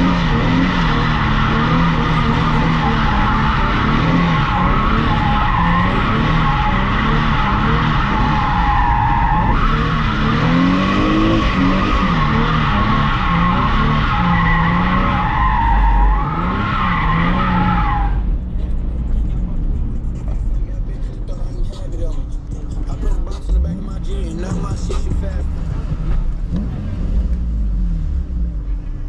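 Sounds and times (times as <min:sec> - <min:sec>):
tires squealing: 0:00.0 - 0:27.7
car engine revving: 0:00.0 - 0:29.0.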